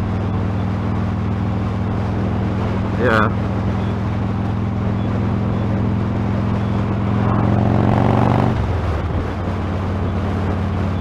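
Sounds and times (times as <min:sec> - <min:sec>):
motorcycle engine and exhaust: 0:00.0 - 0:11.0
wind noise on microphone: 0:00.0 - 0:11.0.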